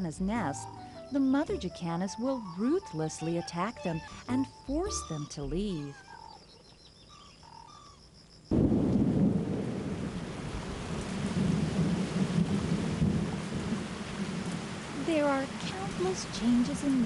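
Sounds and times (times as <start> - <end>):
deep thunder rumble: 8.5 - 17.0
heavy rain: 8.5 - 17.0.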